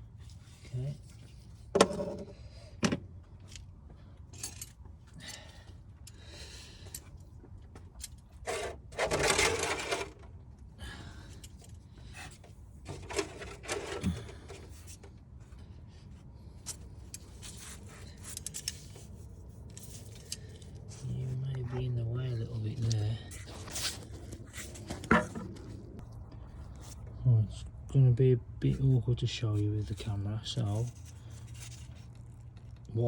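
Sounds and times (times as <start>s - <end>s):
metal scrape: 8.4s - 10.2s.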